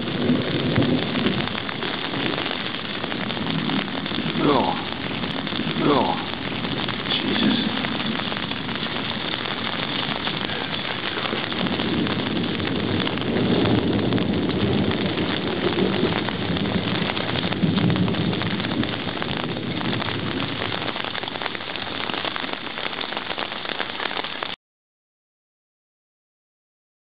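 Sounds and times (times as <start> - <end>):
low rumble of thunder: 0.0 - 22.2
heavy rain pouring: 0.0 - 24.6.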